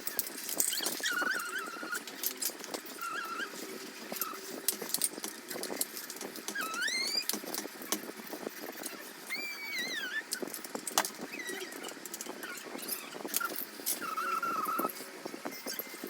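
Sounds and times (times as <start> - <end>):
high squeaky chirps: 0.6 - 2.0, 6.5 - 7.3, 8.7 - 10.5.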